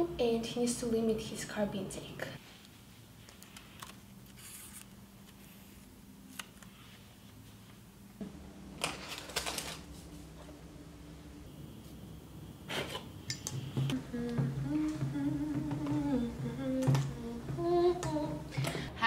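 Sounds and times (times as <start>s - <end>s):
low steady hum: 4.8s - 19.0s.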